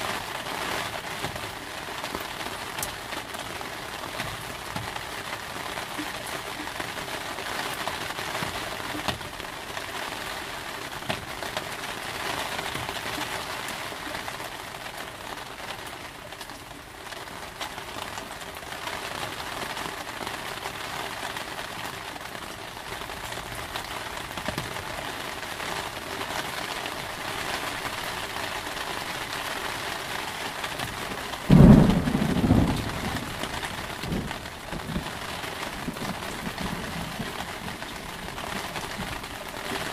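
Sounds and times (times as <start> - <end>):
heavy rain falling: 0.0 - 39.9
thunderclap rumbling: 30.8 - 39.3.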